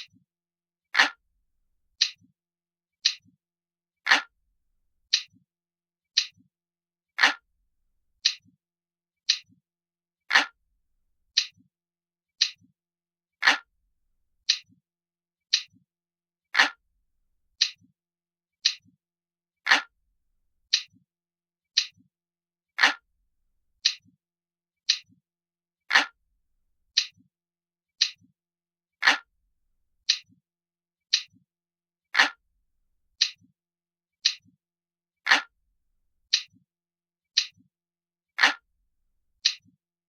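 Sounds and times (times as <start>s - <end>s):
analog clock ticking: 0.0s - 0.2s.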